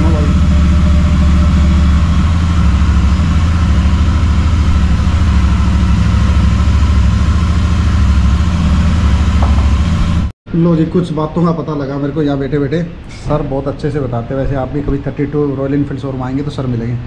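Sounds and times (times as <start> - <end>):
motorcycle engine idling: 0.0 - 10.3.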